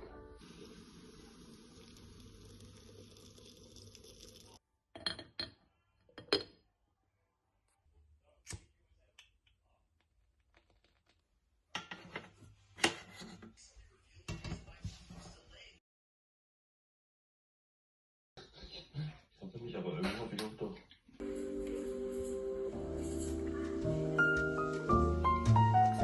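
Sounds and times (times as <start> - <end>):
faint steady hiss: 0.4 - 4.6
tableware clinking: 5.0 - 5.6.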